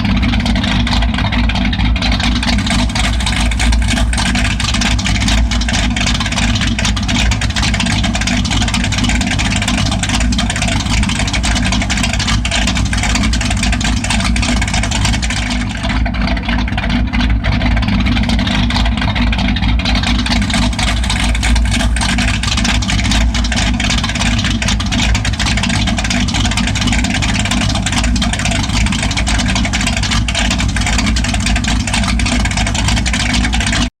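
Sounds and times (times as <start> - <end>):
loud truck engine idling: 0.0 - 33.9.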